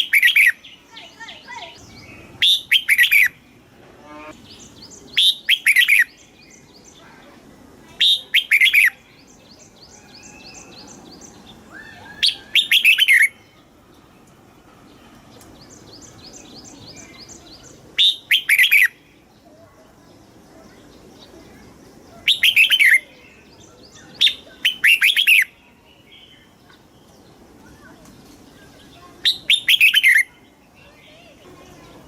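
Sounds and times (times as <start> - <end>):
bird singing whistled phrases: 0.0 - 3.4, 4.8 - 6.2, 8.0 - 9.0, 9.9 - 13.4, 16.0 - 19.0, 22.2 - 26.5, 29.2 - 30.4
faint rapid bird chirps: 14.9 - 32.0.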